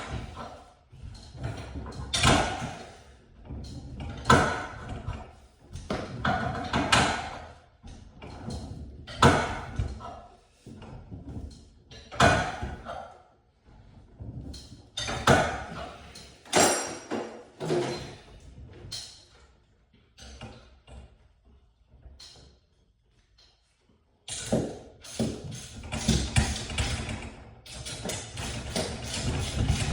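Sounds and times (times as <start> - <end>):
metal tools clanking and knocking: 14.5 - 19.3.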